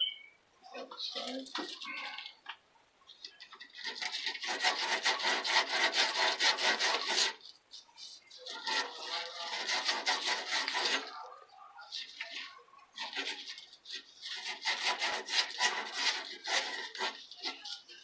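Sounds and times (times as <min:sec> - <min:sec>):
saw rasping through pipe: 0:03.8 - 0:07.5, 0:08.4 - 0:11.3, 0:11.9 - 0:18.0.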